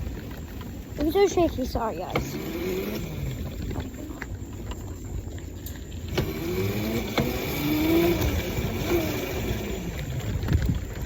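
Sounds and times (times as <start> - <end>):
road rumble: 0.0 - 11.0
small motorbike engine running: 0.0 - 11.0.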